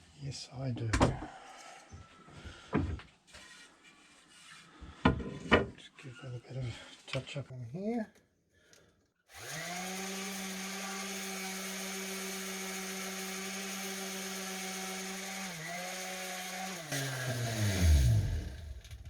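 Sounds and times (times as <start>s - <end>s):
power tool electric motor: 9.3s - 19.0s.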